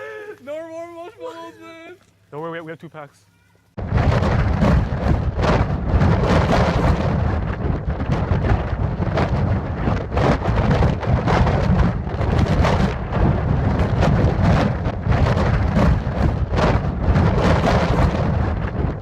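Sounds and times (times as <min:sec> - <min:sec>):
deep thunder rumble: 0:03.8 - 0:19.0.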